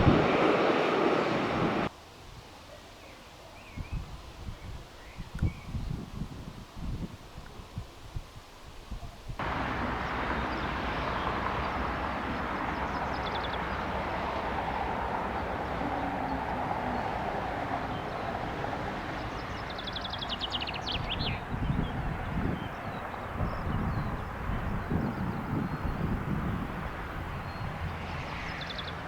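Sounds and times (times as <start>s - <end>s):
jet airliner engine rushing: 0.0s - 1.9s, 9.4s - 29.0s.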